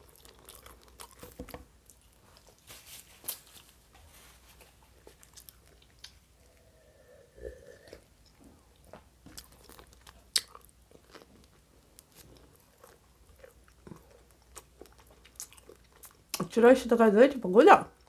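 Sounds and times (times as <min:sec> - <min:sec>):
wet chewing with clicks: 0:00.0 - 0:02.6, 0:04.9 - 0:06.3, 0:07.9 - 0:16.5.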